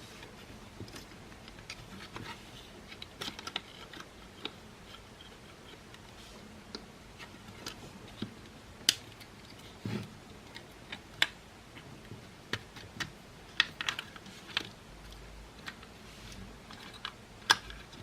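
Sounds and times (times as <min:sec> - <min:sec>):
hard plastic parts clicking: 0:00.8 - 0:06.1, 0:16.7 - 0:18.0.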